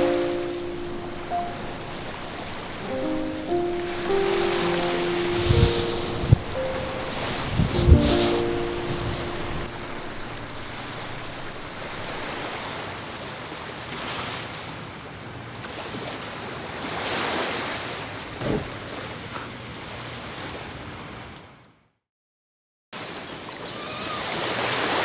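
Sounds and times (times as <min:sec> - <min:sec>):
wind on microphone: 0:00.0 - 0:12.8
sea waves washing ashore: 0:00.0 - 0:21.4
brief thump: 0:18.4 - 0:18.8.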